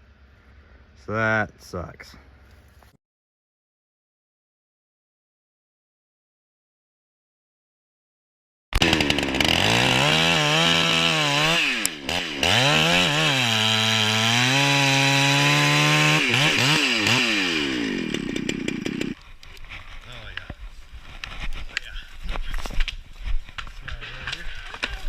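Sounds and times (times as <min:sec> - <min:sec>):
two-stroke chainsaw running: 0:08.8 - 0:19.2.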